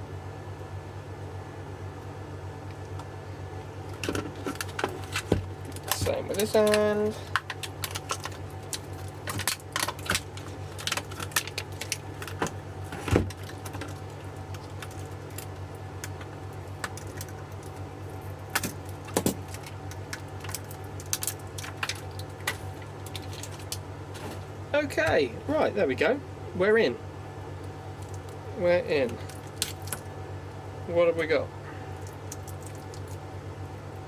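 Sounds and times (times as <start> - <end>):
steady low hum: 0.0 - 34.0
plastic wrap crackling and snipping: 3.9 - 24.6, 29.0 - 30.1, 32.0 - 33.3.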